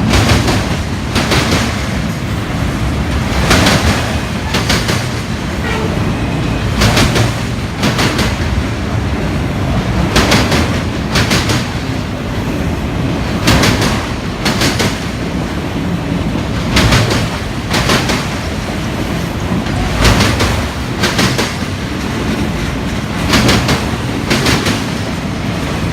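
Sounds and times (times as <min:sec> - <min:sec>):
wheels clacking over rail joint: 0:00.0 - 0:12.0, 0:16.3 - 0:25.9
freight train rumble: 0:00.0 - 0:25.9.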